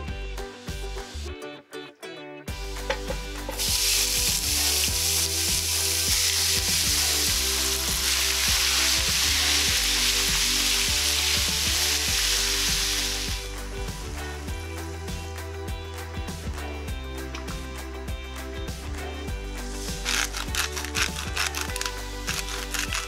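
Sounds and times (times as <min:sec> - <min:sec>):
chicken sizzling in hot oil: 0:03.4 - 0:15.0, 0:19.6 - 0:23.0.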